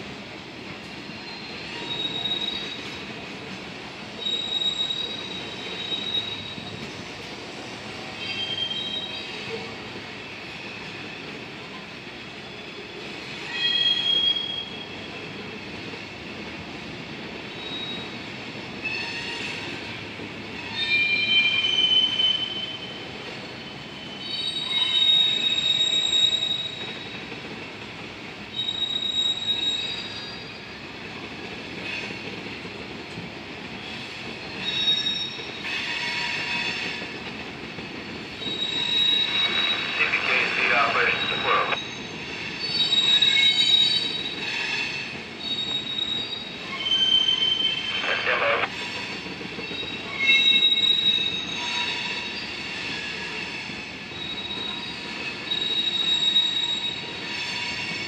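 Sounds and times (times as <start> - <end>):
train wheels squealing: 0.9 - 3.2, 4.1 - 7.2, 8.0 - 15.8, 17.5 - 27.4, 28.5 - 32.4, 33.8 - 58.0
train rolling rumble: 14.7 - 58.0.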